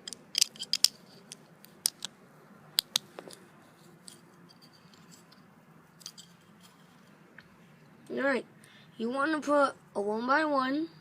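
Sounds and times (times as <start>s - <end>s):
plastic bricks clicking: 0.0s - 2.1s.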